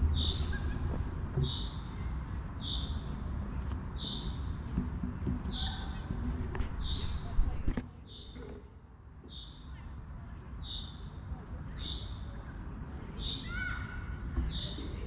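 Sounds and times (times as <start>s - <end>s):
bird repeating high call: 1.4s - 1.9s, 2.6s - 3.1s, 13.2s - 14.9s.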